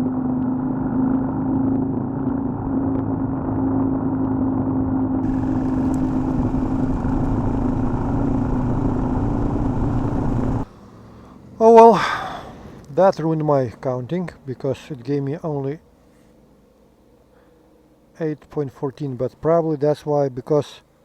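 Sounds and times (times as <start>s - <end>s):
motorcycle engine cruising: 0.0s - 12.9s
wind and road noise: 0.0s - 18.1s.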